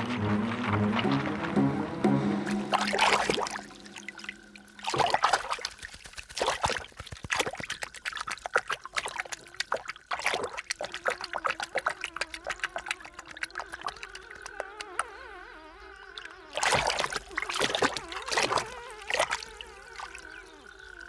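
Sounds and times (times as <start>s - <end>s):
music: 0.0s - 4.6s
water trickling and dripping: 2.4s - 15.2s, 16.0s - 21.0s.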